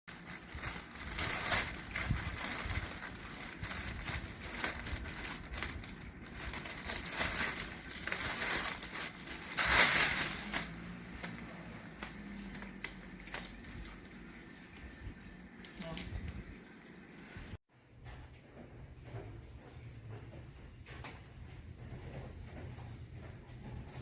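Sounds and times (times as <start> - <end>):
rustling and crinkling: 0.1 - 14.3.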